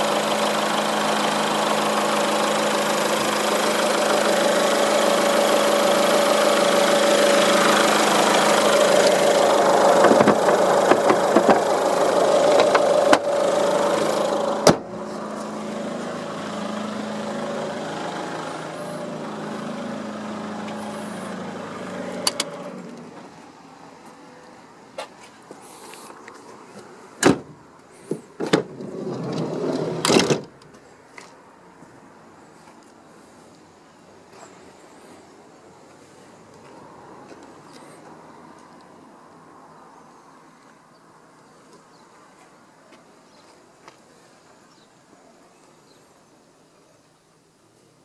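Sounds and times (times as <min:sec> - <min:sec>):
car engine idling: 0:00.0 - 0:24.4
car bonnet slamming shut: 0:09.8 - 0:11.7, 0:14.6 - 0:15.0, 0:27.2 - 0:27.6, 0:29.4 - 0:30.5.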